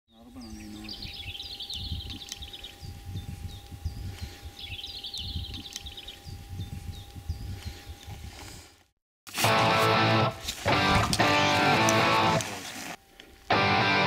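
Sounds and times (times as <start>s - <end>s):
bird singing trills: 0.1s - 8.1s
faint steady hum: 0.1s - 8.9s
low gusty rumble: 0.9s - 8.4s.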